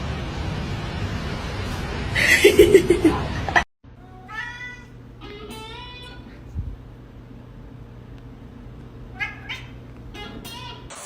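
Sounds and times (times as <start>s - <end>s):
cat meowing: 4.1s - 6.2s, 9.1s - 10.9s.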